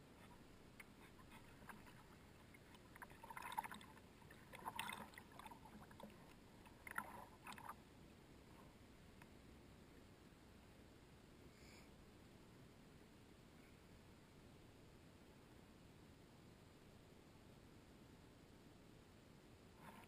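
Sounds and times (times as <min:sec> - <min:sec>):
kayak paddle splashing water: 0:01.0 - 0:07.8.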